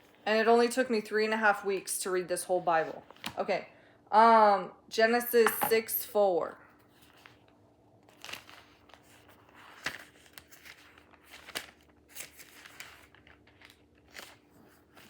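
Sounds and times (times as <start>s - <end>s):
pages rustling and flicking: 6.8s - 15.0s.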